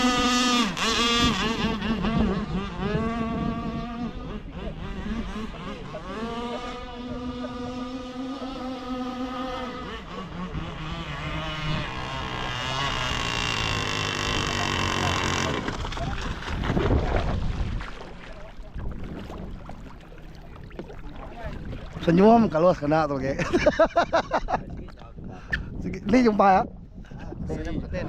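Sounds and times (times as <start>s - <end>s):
two-stroke boat engine revving: 0.0s - 23.9s
short rough noise: 11.9s - 17.4s.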